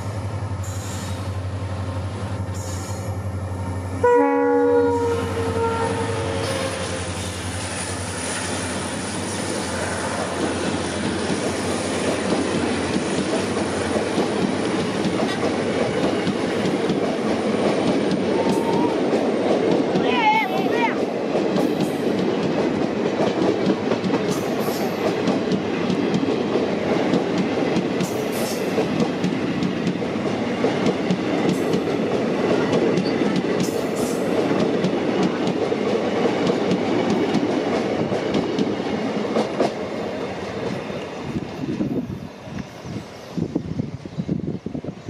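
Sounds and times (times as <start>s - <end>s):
train passing at speed: 0.0s - 45.0s.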